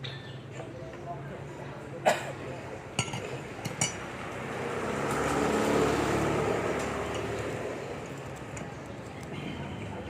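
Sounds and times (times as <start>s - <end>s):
motor vehicle passing: 4.0s - 10.0s.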